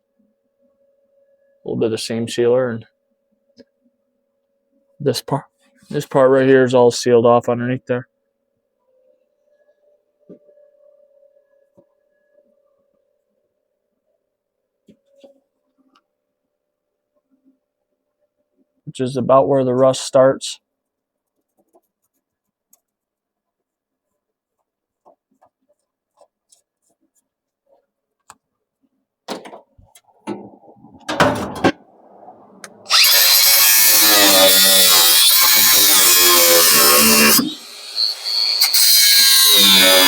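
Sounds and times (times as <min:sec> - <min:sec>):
power tool on sheet metal: 0:32.9 - 0:40.0.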